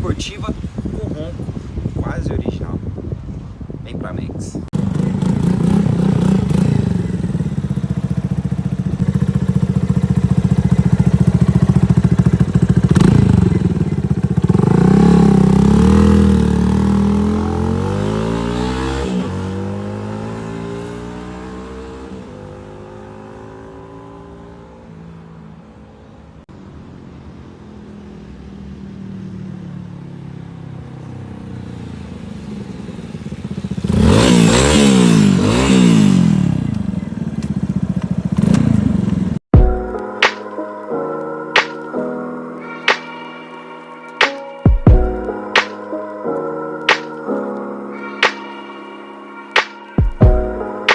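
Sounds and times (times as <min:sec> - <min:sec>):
motorcycle engine accelerating: 0:04.7 - 0:25.1, 0:31.8 - 0:39.7.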